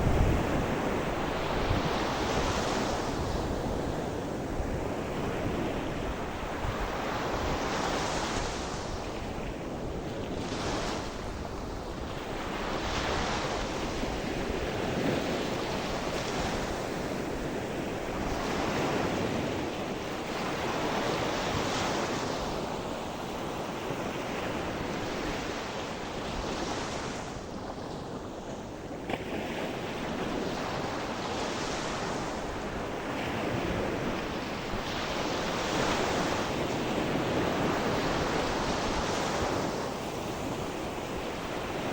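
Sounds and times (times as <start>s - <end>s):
wind rumbling on microphone: 0.0s - 41.9s
waves breaking ashore: 10.4s - 41.9s.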